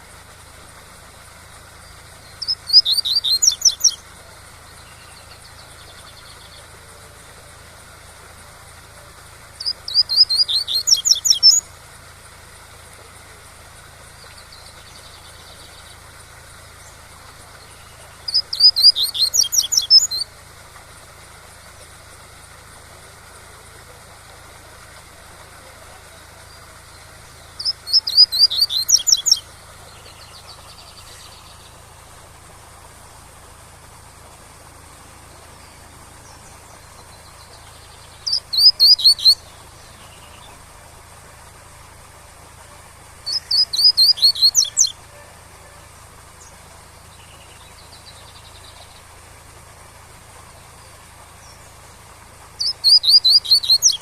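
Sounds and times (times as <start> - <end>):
bird singing rapid high notes: 1.8 - 4.0, 9.5 - 11.7, 17.6 - 20.4, 26.0 - 31.9, 35.5 - 40.6, 43.2 - 45.0, 52.5 - 54.0.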